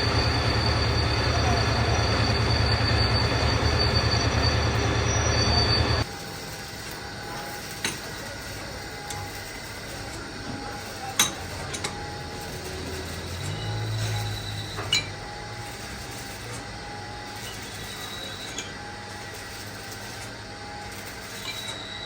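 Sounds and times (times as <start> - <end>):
boring machine grinding steel: 0.0 - 22.0
workshop noise: 0.0 - 22.0.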